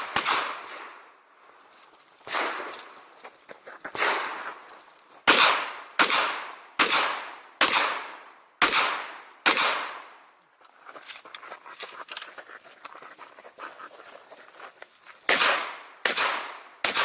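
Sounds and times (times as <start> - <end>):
shotgun shots echoing: 0.0 - 1.0, 2.3 - 2.7, 5.3 - 10.1, 15.3 - 17.0.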